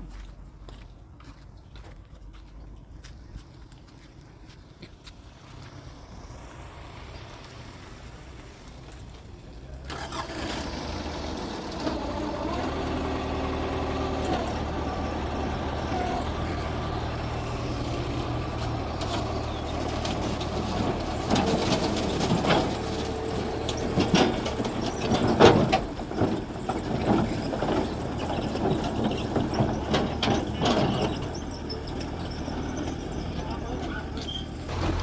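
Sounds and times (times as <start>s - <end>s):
diesel engine running: 4.6s - 35.0s
metal knocks and clatter: 16.7s - 33.2s.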